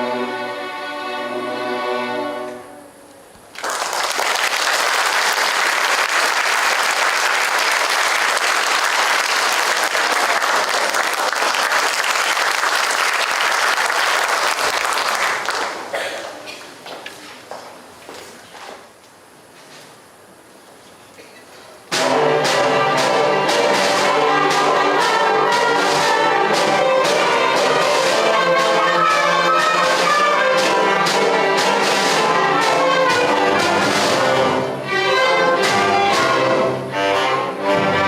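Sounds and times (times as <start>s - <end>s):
school band holding chord: 0.0s - 3.0s, 21.9s - 38.0s
audience applauding: 3.5s - 16.0s.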